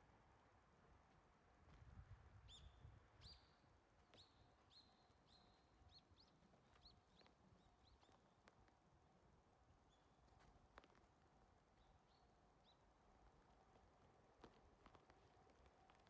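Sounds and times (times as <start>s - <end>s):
faint small bird chirps: 2.4s - 8.7s.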